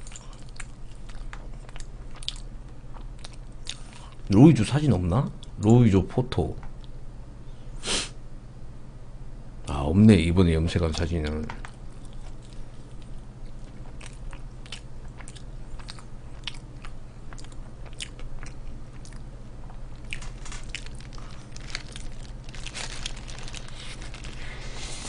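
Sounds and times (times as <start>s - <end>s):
person chewing crunchy food: 0.0s - 4.3s, 11.7s - 25.0s
steady low hum: 0.0s - 25.0s.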